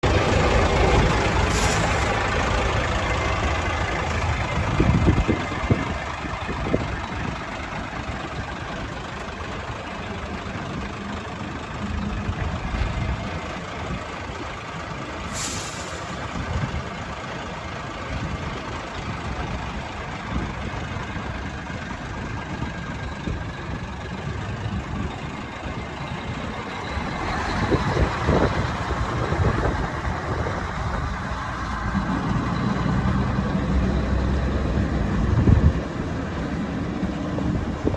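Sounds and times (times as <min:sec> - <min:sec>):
diesel truck engine idling: 0:00.0 - 0:37.9
air brake hisses: 0:01.4 - 0:02.2, 0:15.3 - 0:16.2.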